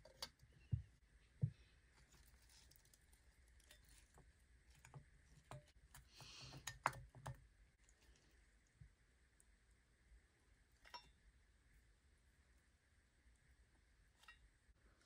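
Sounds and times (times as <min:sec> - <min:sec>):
leafy greens handled in water: 0:01.6 - 0:07.2.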